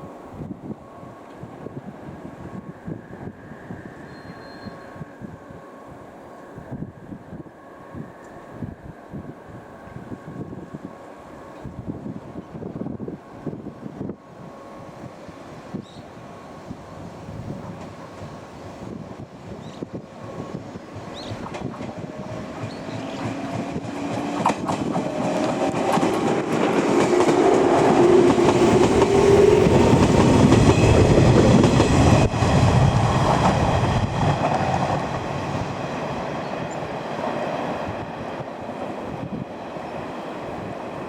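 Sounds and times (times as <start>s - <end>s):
wheels clacking over rail joints: 21.1s - 32.5s.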